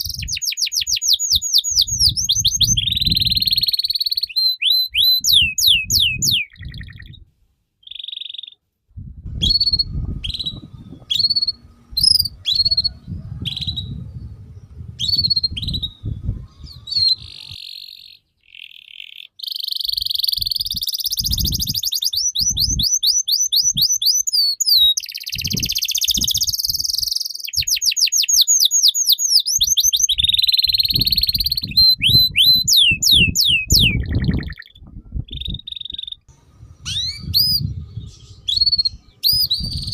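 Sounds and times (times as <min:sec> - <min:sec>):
songbird singing: 0:00.0 - 0:07.2, 0:07.8 - 0:08.6, 0:09.4 - 0:39.9
low rumbling noise: 0:08.9 - 0:17.6, 0:36.3 - 0:39.9.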